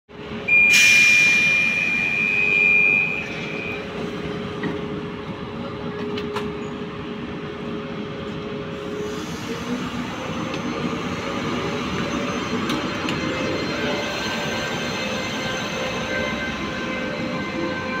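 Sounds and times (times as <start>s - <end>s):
train rumbling past: 0.1s - 18.0s
high-pitched wheel squeal: 0.5s - 3.9s.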